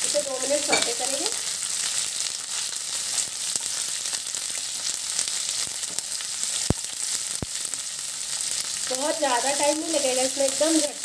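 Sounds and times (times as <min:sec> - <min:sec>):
vegetables sizzling in oil: 0:00.0 - 0:11.0
spatula tap: 0:00.7 - 0:01.0.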